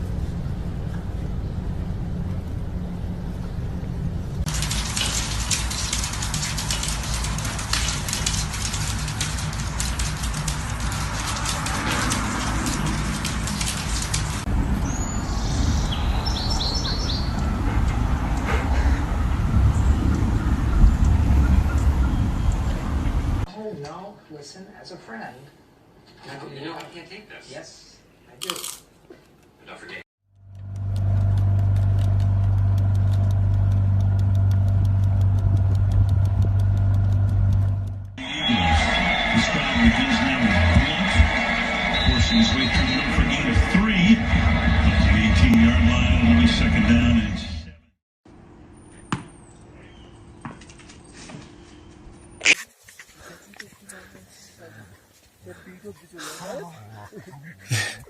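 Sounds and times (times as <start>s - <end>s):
low rumble: 0.0s - 23.5s, 30.4s - 38.2s
rapid clicks: 4.5s - 14.5s, 30.4s - 38.2s
engine idling with ticking: 30.3s - 38.2s.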